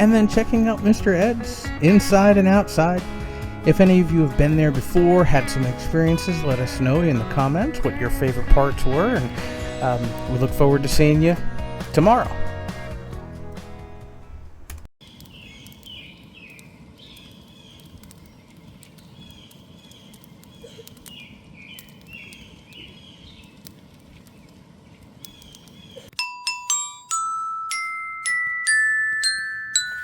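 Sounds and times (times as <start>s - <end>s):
ringing glockenspiel notes: 26.2s - 30.0s.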